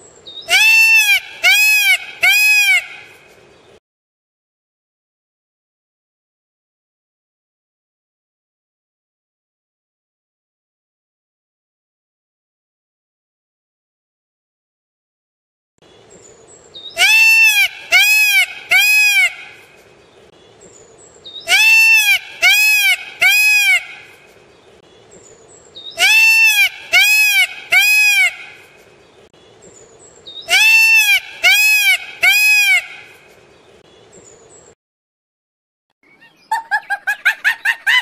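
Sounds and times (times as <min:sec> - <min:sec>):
faint background noise: 0:00.0 - 0:03.8, 0:15.8 - 0:34.8
peacock calling: 0:00.4 - 0:03.3, 0:16.8 - 0:19.9, 0:21.2 - 0:24.5, 0:25.8 - 0:28.9, 0:30.3 - 0:33.4, 0:36.0 - 0:38.0.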